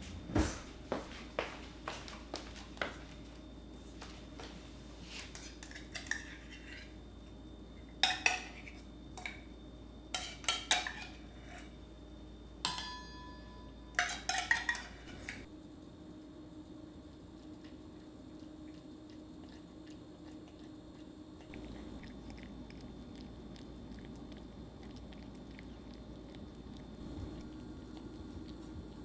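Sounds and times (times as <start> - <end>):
dishes and cutlery clinking: 4.4 - 7.0, 8.0 - 9.5, 10.2 - 11.8, 12.6 - 15.5.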